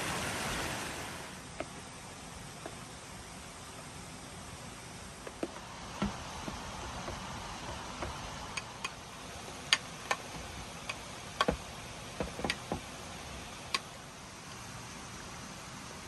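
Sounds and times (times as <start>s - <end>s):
steady hiss: 0.0s - 16.0s
sharp clicks and taps: 9.6s - 12.9s.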